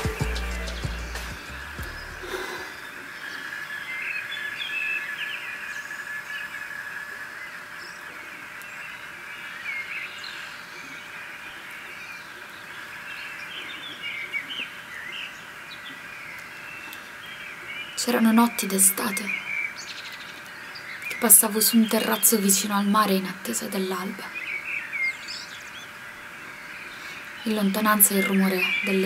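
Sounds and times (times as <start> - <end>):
high-pitched drone: 0.0 - 2.7
birds chirping: 0.0 - 29.0.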